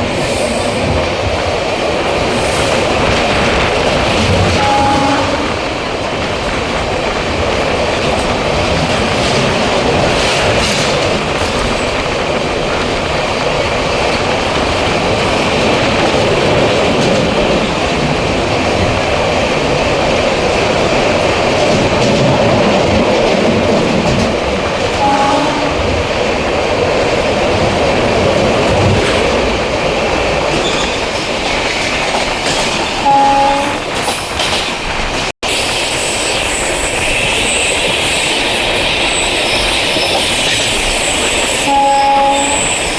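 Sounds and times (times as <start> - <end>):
train wheels clattering on rails: 0.0 - 42.9
train horn toots: 4.5 - 5.7, 25.0 - 26.0, 33.0 - 33.9, 41.6 - 42.9.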